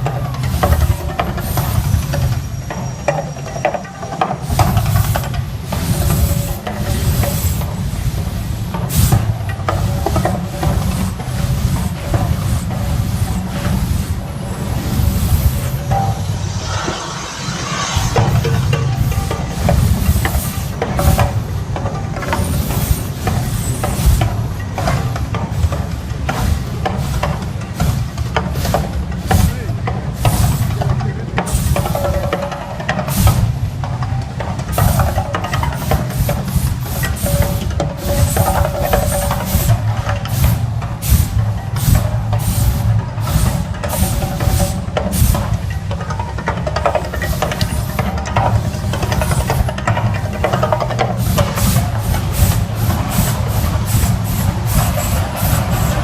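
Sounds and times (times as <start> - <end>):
hissing bursts: 4.4 - 21.6, 34.7 - 45.6, 48.7 - 56.0
deep continuous rumble: 8.0 - 32.3
hissing whooshes: 10.8 - 21.5, 51.2 - 56.0
deep steady rumble: 11.7 - 21.8.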